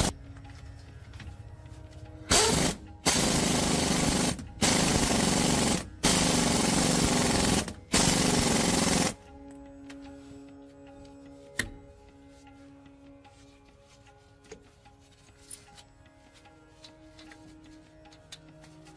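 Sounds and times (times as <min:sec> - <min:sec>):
power tool on metal: 0:02.3 - 0:05.0.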